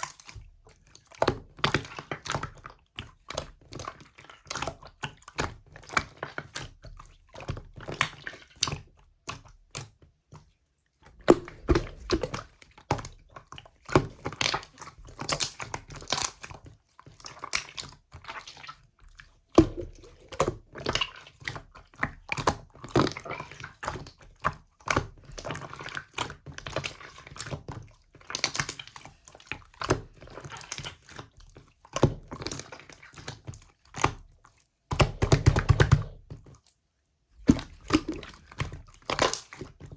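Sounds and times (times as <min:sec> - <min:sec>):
slime being squished by hand: 0:11.2 - 0:18.8, 0:34.9 - 0:36.5, 0:37.4 - 0:39.9.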